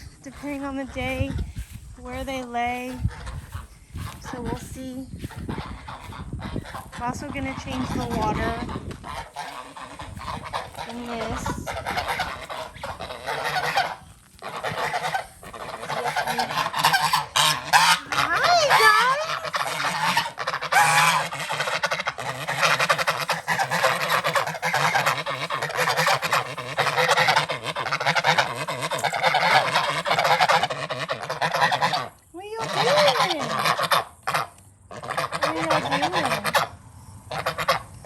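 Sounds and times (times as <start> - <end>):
geese honking: 0.0 - 38.0.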